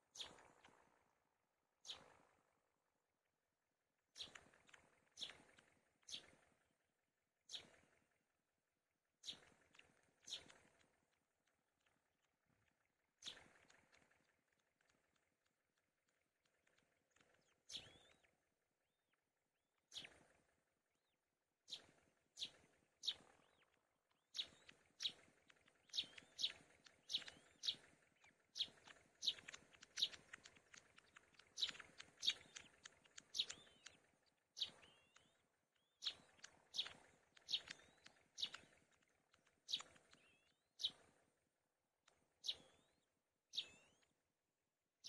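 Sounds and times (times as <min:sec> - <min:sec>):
high-pitched bird chirps: 0:31.1 - 0:34.0, 0:34.6 - 0:38.6, 0:42.4 - 0:44.1.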